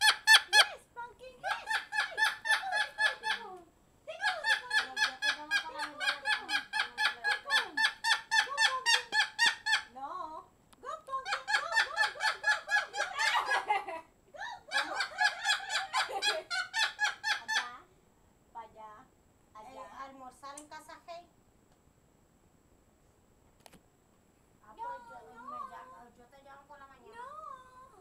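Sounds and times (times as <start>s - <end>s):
parrot cackling: 0.0s - 0.8s, 1.4s - 10.0s, 11.1s - 17.8s.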